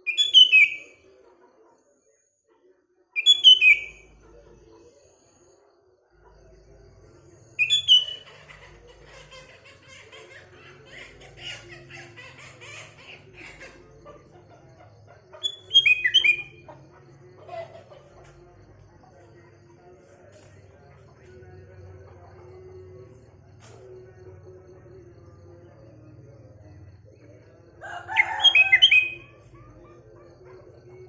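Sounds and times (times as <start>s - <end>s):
sharp downward-slurred birdsong: 7.6s - 8.3s, 15.4s - 16.6s
soft bird twittering: 7.6s - 8.4s, 15.4s - 16.8s.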